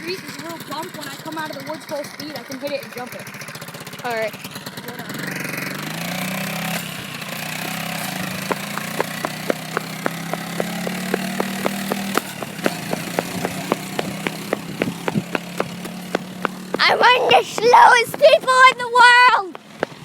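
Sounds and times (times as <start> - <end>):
dirt bike engine running: 7.6 - 20.0.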